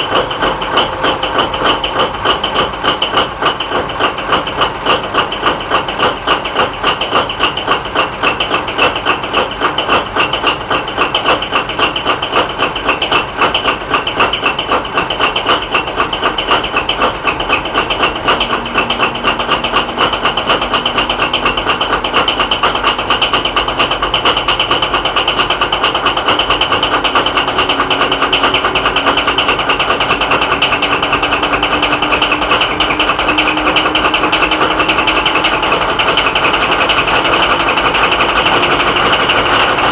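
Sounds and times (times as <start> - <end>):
diesel engine idling: 0.0 - 39.9
faint rising tone: 17.8 - 24.0.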